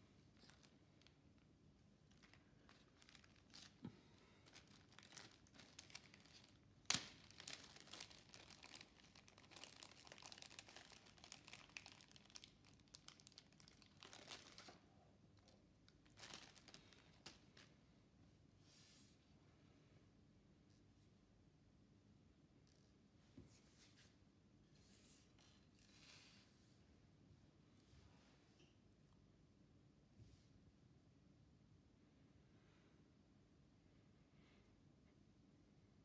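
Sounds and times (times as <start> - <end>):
crinkling and rustling: 0.3 - 17.8.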